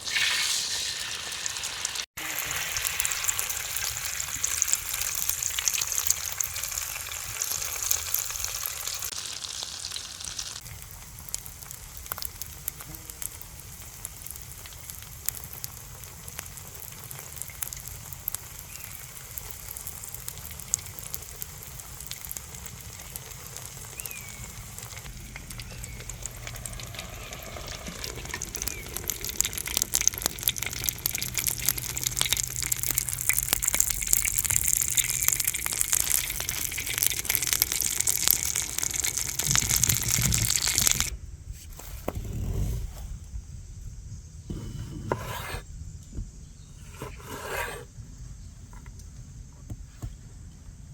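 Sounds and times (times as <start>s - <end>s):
food sizzling in a frying pan: 0.0s - 41.1s
pops and crackles: 10.6s - 41.1s.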